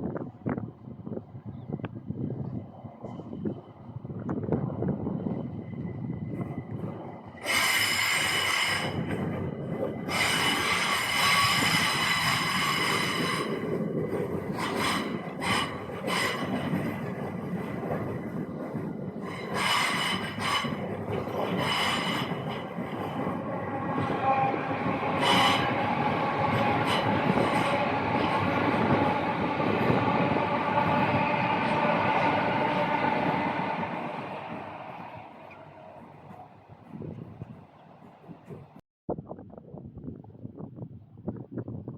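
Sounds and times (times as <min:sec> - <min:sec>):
train wheels rumbling: 0:03.0 - 0:38.8
train wheel squeal: 0:07.4 - 0:09.4, 0:10.0 - 0:13.8, 0:14.5 - 0:17.2, 0:19.2 - 0:37.0.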